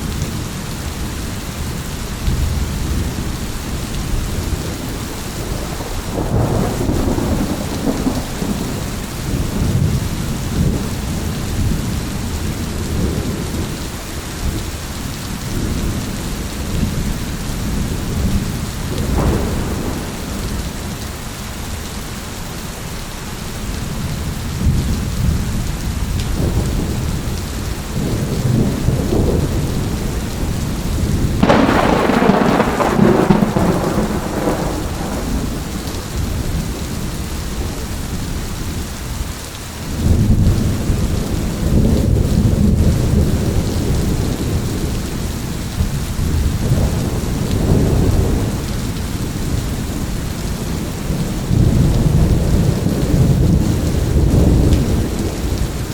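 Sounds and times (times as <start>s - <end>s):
thunder rumbling: 0.0s - 14.8s, 15.4s - 21.6s, 23.6s - 38.9s, 39.9s - 55.9s
steady rain: 0.0s - 55.9s
thunderclap: 4.4s - 13.7s, 17.7s - 21.0s, 26.3s - 37.8s, 45.8s - 55.9s.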